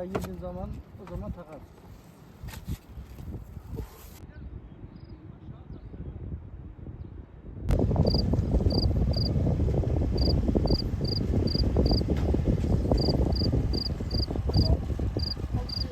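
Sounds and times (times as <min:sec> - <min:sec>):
loud low rushing noise: 0:06.6 - 0:15.9
cricket chirping: 0:08.1 - 0:09.3, 0:10.2 - 0:12.0, 0:13.0 - 0:14.3, 0:15.2 - 0:15.8.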